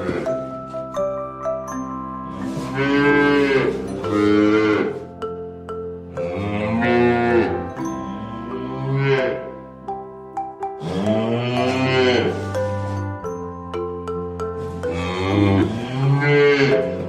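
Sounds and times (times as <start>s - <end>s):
cattle mooing: 0.0s - 0.4s, 2.4s - 5.1s, 6.1s - 9.6s, 10.8s - 12.5s, 14.8s - 17.0s
background music: 0.0s - 17.0s.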